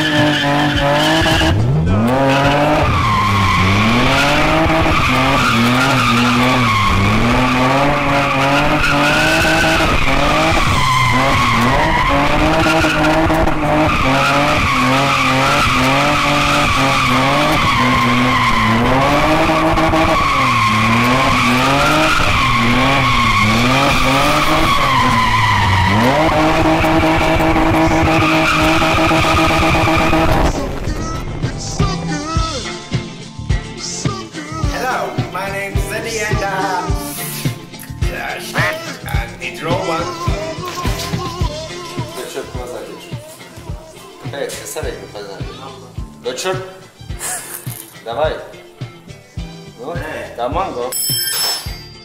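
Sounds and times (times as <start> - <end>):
car engine revving hard: 0.0 - 32.6
tyres screeching: 0.0 - 33.2, 33.8 - 48.1.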